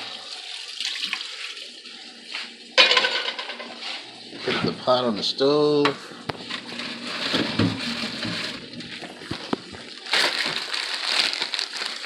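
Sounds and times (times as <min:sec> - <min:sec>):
tap water running: 0:00.0 - 0:12.0
plastic packaging crackling: 0:06.4 - 0:12.0.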